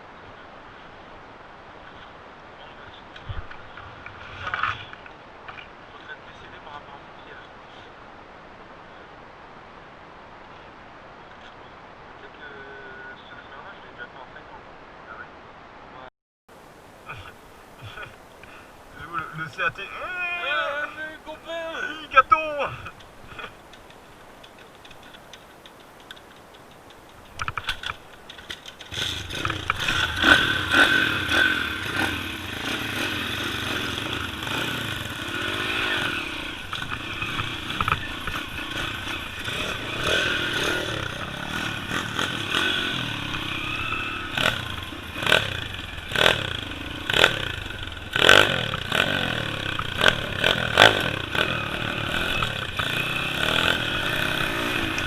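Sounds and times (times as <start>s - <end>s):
small motorbike engine revving: 28.9s - 55.0s.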